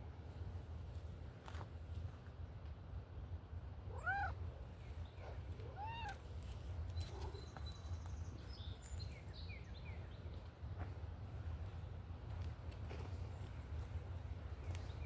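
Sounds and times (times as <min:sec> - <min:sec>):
cat meowing: 0:03.9 - 0:04.4, 0:05.6 - 0:06.2.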